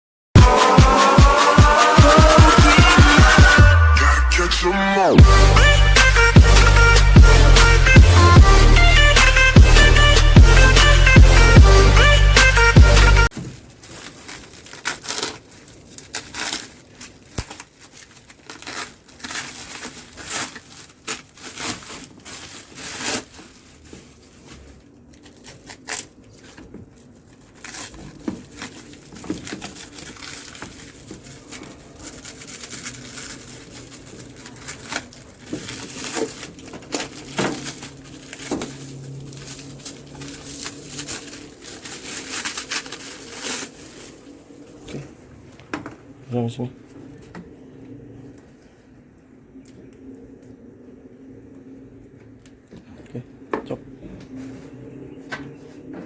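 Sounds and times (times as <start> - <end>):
plastic rustling: 13.3 - 47.4.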